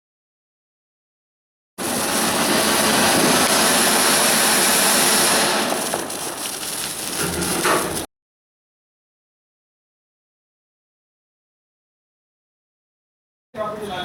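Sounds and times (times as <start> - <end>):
firework crackles: 1.8 - 8.1
firework hissing rush: 1.8 - 8.1.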